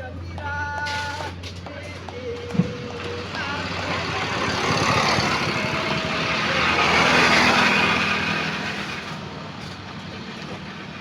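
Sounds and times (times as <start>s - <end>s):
vehicle passing by: 2.5s - 11.0s.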